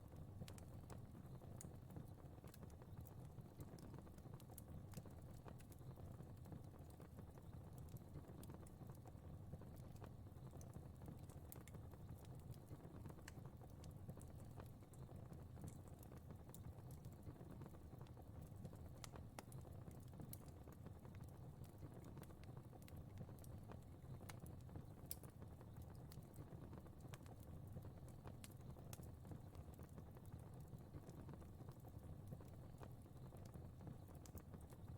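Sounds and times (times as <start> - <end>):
fire crackling and popping: 0.0 - 34.9.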